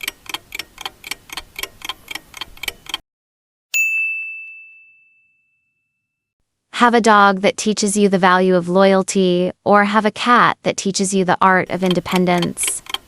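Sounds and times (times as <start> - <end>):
clock countdown ticks: 0.0 - 3.0, 11.6 - 13.0
bright ding: 3.8 - 6.2.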